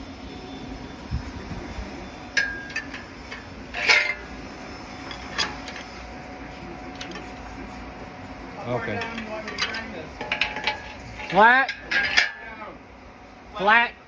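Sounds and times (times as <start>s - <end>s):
steady low hum: 0.0s - 14.0s
metal tools clinking: 2.4s - 4.4s, 5.0s - 6.0s, 8.8s - 12.6s.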